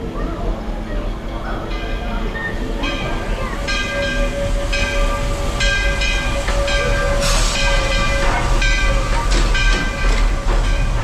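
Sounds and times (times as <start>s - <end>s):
steam train rumble: 0.0s - 11.0s
steam hiss: 3.6s - 10.6s.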